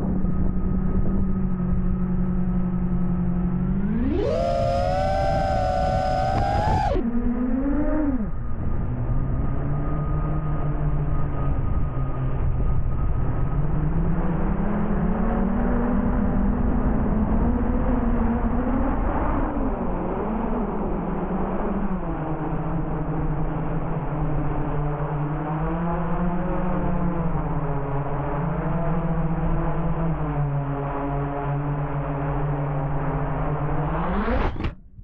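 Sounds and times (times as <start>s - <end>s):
quadcopter motors buzzing: 0.1s - 34.8s
high wailing tone: 3.7s - 8.4s.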